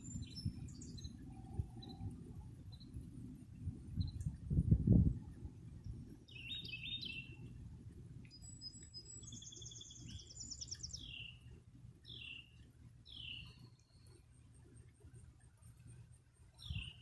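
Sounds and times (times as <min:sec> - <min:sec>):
birdsong chirps and trills: 0:00.0 - 0:02.1, 0:06.2 - 0:07.6, 0:08.2 - 0:14.3, 0:16.6 - 0:17.0
faint low background rumble: 0:00.0 - 0:17.0.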